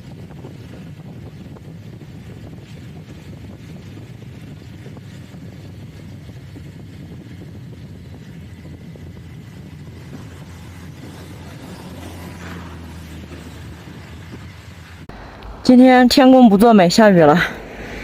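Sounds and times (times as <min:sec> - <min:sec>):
motorcycle engine rumbling: 0:00.0 - 0:18.0
road and wind noise: 0:00.0 - 0:18.0.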